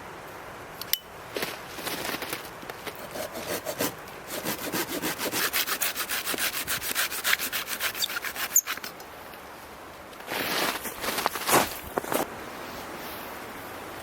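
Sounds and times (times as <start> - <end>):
rapid scraping on wood: 1.8 - 9.0.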